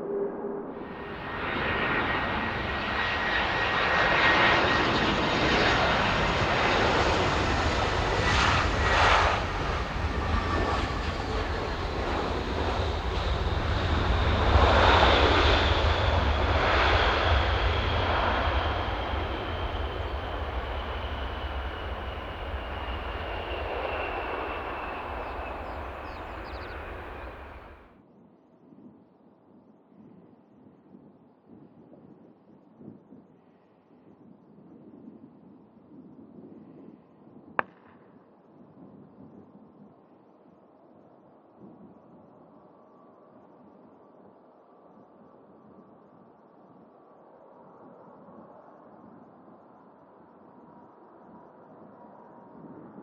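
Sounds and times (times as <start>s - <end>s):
jet airliner engines roaring: 0.8s - 27.9s
high engine whine falling in pitch: 1.0s - 27.8s.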